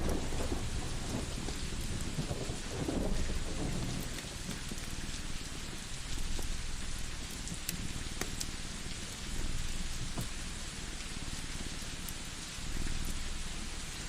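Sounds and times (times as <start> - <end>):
thunder rumble: 0.0 - 5.7
steady rain: 0.0 - 14.0
wood fire crackles: 0.0 - 14.0.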